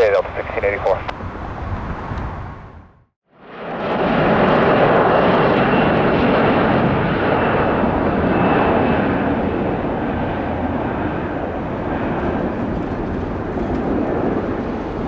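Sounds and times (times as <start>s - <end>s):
jet engines rumbling: 0.0s - 15.0s
faint high jet whine: 3.4s - 15.0s.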